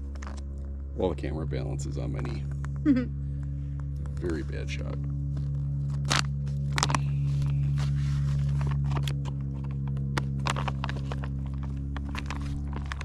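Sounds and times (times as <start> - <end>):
steady low hum: 0.0 - 13.0
spoon clicking and scraping pouch: 5.4 - 13.0.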